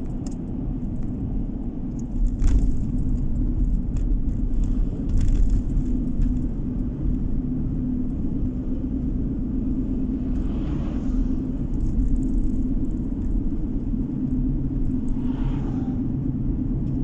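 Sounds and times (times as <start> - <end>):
car interior road rumble: 0.0 - 17.0.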